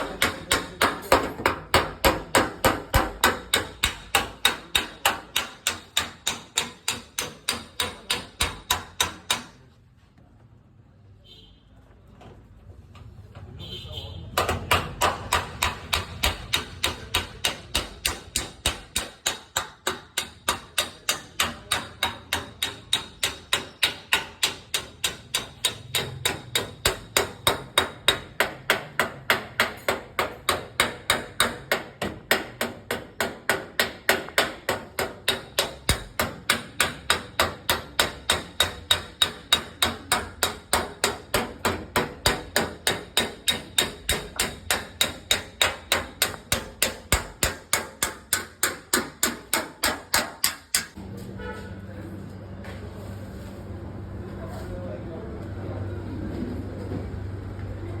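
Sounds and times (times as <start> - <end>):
small hammer tapping metal: 0.0 - 9.7, 14.4 - 51.0.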